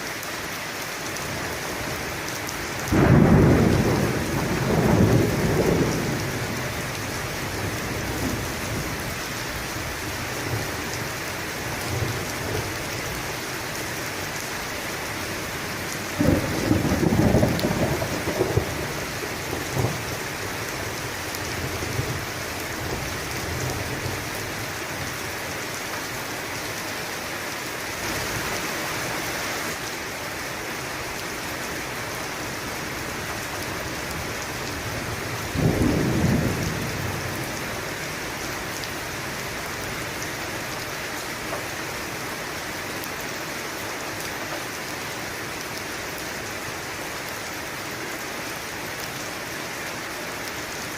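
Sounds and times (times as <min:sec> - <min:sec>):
steady rain: 0:00.0 - 0:50.9
rolling thunder: 0:02.9 - 0:09.0, 0:16.1 - 0:20.2, 0:34.7 - 0:37.8.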